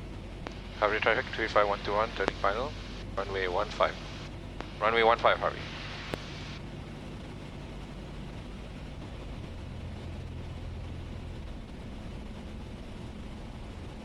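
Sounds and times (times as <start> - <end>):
airplane engine and propeller droning: 0.0 - 14.0.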